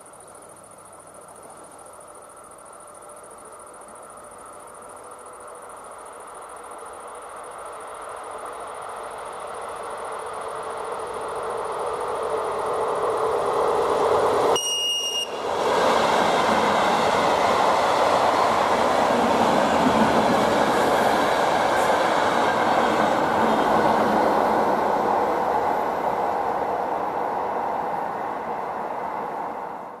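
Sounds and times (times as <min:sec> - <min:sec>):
train wheels rolling over rails: 0:06.3 - 0:30.0.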